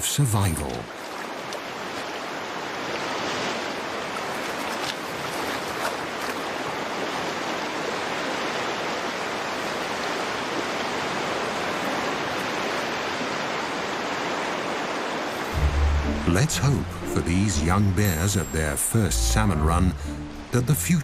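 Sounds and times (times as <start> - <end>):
stream water flowing: 0.0 - 21.0.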